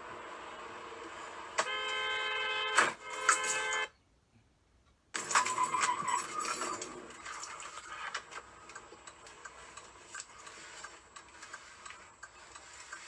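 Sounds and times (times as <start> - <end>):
turn signal ticking: 8.1 - 13.0.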